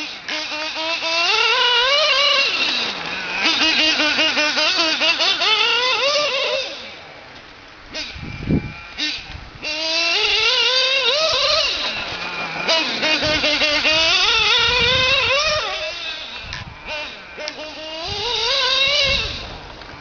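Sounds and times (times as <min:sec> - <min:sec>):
small nitro engine revving: 0:00.0 - 0:20.0.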